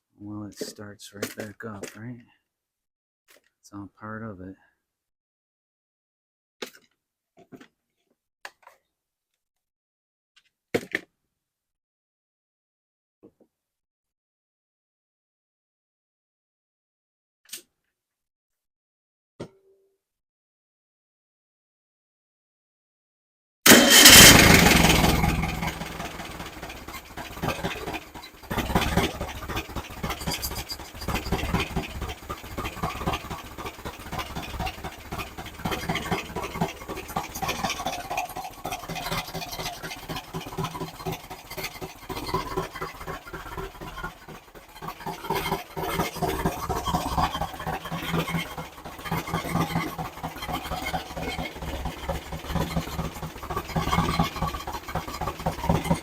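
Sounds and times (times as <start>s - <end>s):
engine running: 23.7s - 56.0s.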